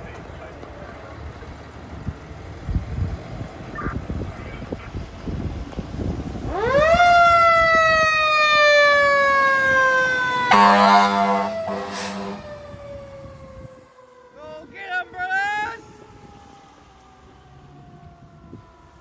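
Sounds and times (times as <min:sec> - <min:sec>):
wavering electronic siren: 0:06.4 - 0:19.0
truck air horn: 0:10.5 - 0:12.7.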